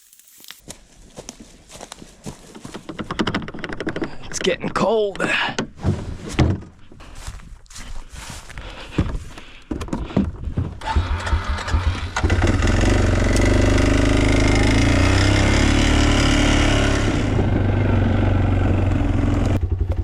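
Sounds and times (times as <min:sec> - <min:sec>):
knocks and handling sounds: 0:02.2 - 0:10.8
atv engine idling: 0:10.8 - 0:15.6, 0:17.1 - 0:20.0.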